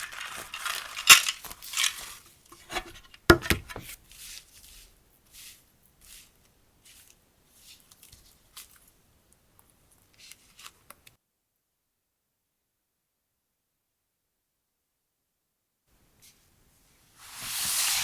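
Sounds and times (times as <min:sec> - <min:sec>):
packaging rustling and tapping: 0:00.0 - 0:04.0.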